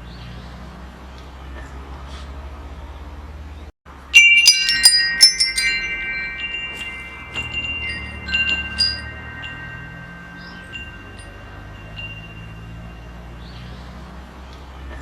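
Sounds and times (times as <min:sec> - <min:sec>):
metal wind chimes ringing: 0:03.9 - 0:14.4.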